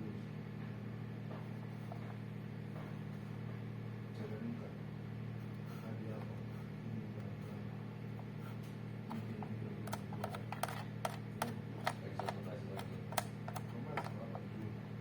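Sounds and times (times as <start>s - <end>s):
steady low hum: 0.0s - 15.0s
sharp clicks and taps: 9.9s - 14.2s.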